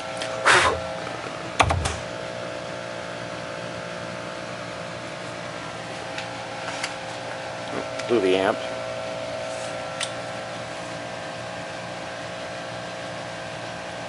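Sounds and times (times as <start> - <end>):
amplifier hum: 0.0 - 6.6.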